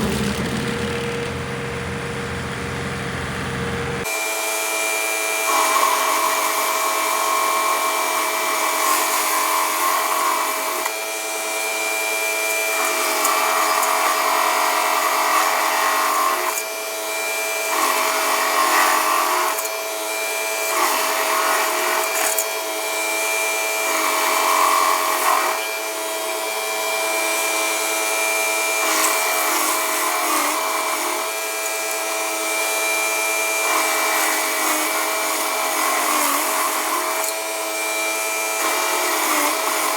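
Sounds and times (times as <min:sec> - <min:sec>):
machine whine: 0:00.0 - 0:06.1
stump grinder grinding: 0:00.0 - 0:39.9.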